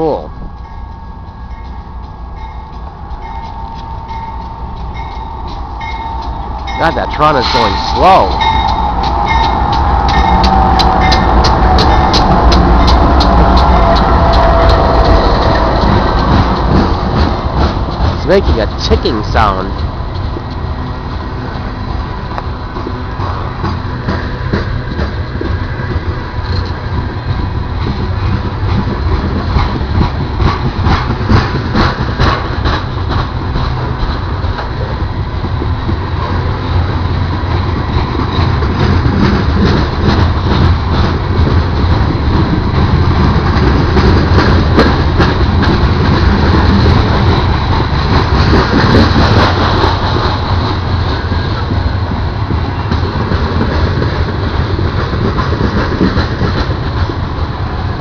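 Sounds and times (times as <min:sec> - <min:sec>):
freight train rumbling: 0:00.0 - 0:58.0
wheels clicking over rail joints: 0:01.5 - 0:58.0
ticking sound: 0:08.1 - 0:20.6.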